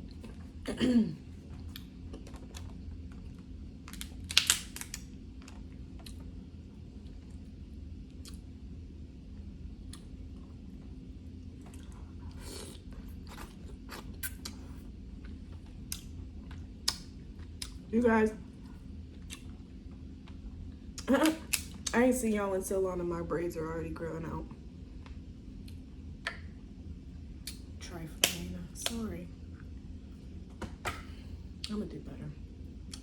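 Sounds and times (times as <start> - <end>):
chewing: 1.5 - 4.2, 5.4 - 6.3
crab shells cracking: 3.9 - 5.1.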